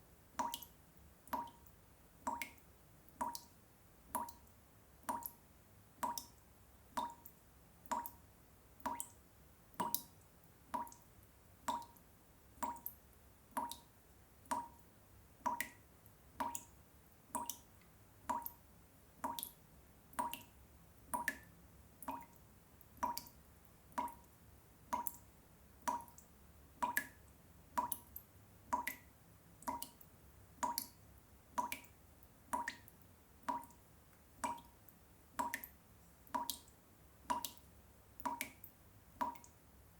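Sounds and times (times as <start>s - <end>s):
water drops plopping into water: 0.4s - 5.4s, 6.0s - 6.4s, 7.0s - 8.2s, 8.8s - 11.0s, 11.6s - 12.0s, 12.6s - 15.8s, 16.4s - 17.7s, 18.3s - 18.6s, 19.2s - 22.4s, 23.0s - 31.0s, 31.6s - 31.9s, 32.5s - 33.8s, 34.4s - 34.8s, 35.4s - 39.6s.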